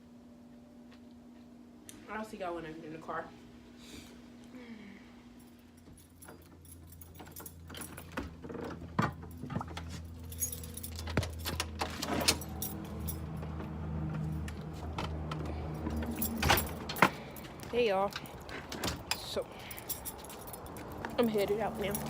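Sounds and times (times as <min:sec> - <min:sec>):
keys jangling: 0:05.7 - 0:22.0
low car hum: 0:06.6 - 0:22.0.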